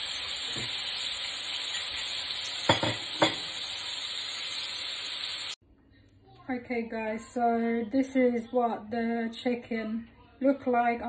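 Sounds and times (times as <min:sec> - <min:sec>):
chicken frying in oil: 0:00.0 - 0:05.6.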